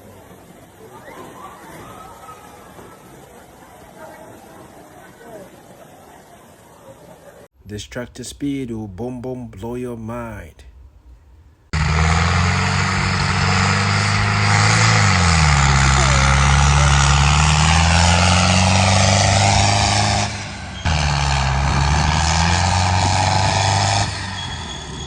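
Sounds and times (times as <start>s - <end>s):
heavy vehicle engine running: 11.7s - 25.0s.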